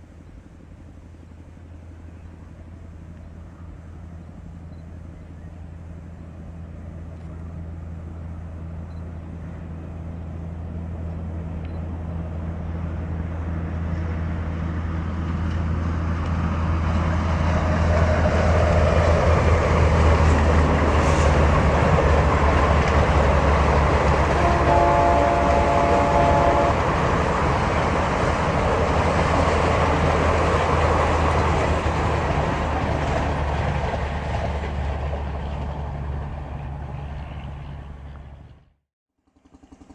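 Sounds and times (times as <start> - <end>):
rush of passing train: 0.0 - 38.7
diesel locomotive engine drone: 0.0 - 38.8
train horn: 20.3 - 27.9.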